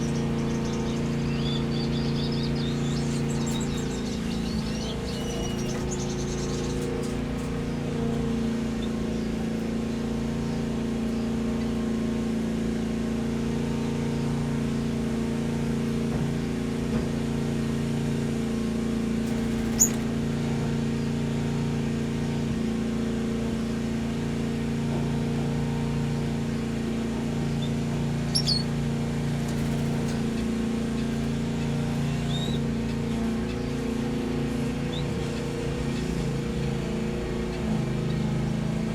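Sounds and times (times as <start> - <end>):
birds chirping: 0.0 - 11.9, 19.2 - 21.5, 26.4 - 38.9
low mechanical hum: 0.0 - 38.9.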